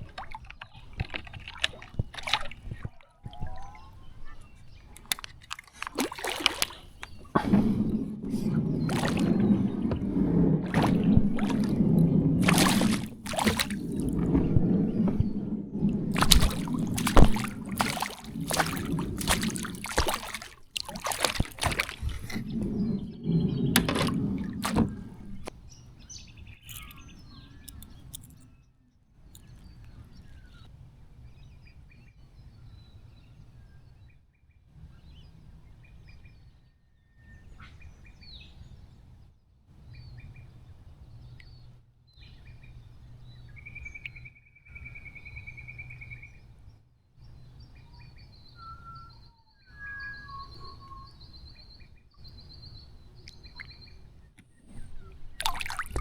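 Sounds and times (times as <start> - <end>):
water splashing and sloshing: 0.0 - 3.7, 5.0 - 25.5, 54.5 - 56.0
birds chirping: 0.3 - 28.6, 47.2 - 56.0.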